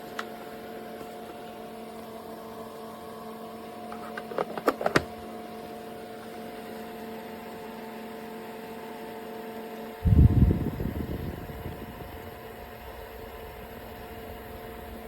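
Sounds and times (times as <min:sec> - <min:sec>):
electric fan motor humming: 0:00.0 - 0:15.0
low rumbling burst: 0:10.0 - 0:15.0.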